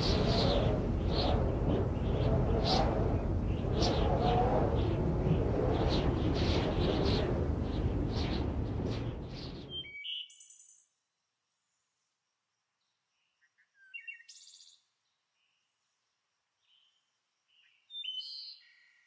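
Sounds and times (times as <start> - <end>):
thunder rumble: 0.0 - 9.8
high chirping bird calls: 9.3 - 10.7.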